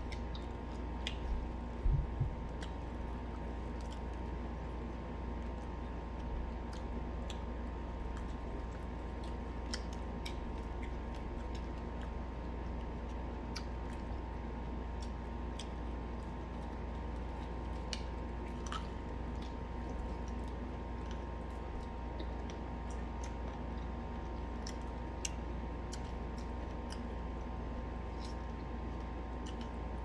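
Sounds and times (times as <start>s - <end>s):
chewing and biting fried chicken: 0.0s - 30.0s
low hum: 1.3s - 3.1s.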